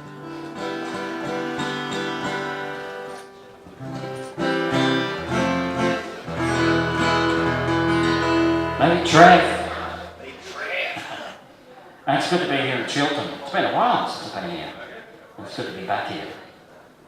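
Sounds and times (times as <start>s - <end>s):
acoustic guitar strumming: 0.0s - 11.4s
deep bass note: 5.2s - 11.3s.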